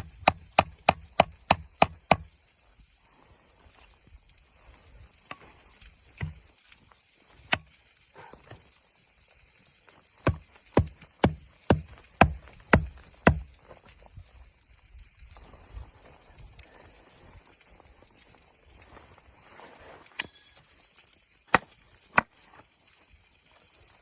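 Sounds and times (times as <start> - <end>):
sharp knocks on wood: 0.0 - 2.3, 10.3 - 13.5.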